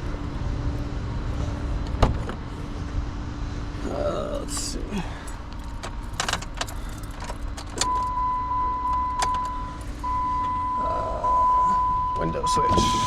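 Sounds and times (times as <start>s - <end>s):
car keys jangling: 4.6s - 10.6s
high-pitched car warning tone: 7.8s - 13.0s.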